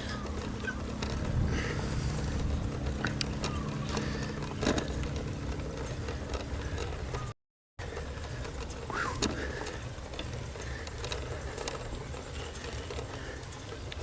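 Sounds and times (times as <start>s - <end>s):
wind rumbling on microphone: 0.0s - 7.3s
bicycle clicks and rattles: 0.0s - 14.0s.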